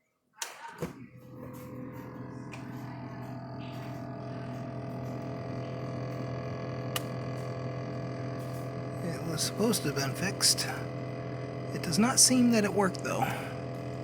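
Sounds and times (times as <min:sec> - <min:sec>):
refrigerator buzzing: 0:00.4 - 0:14.0.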